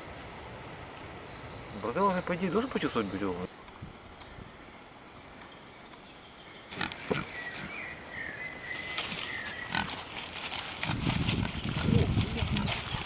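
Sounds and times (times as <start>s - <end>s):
animal rustling through undergrowth: 6.7s - 13.0s.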